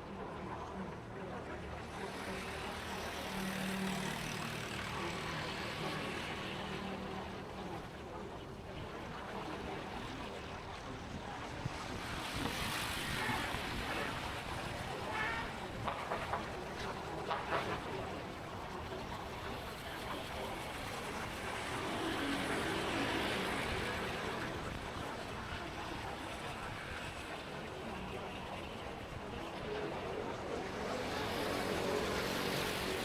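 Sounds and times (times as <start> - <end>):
road noise: 1.2 - 33.0
wind noise: 8.8 - 17.9.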